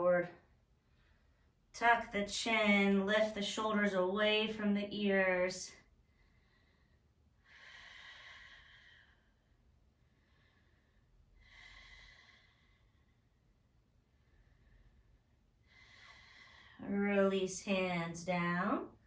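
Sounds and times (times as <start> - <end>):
woman breathing softly: 6.0 - 16.8.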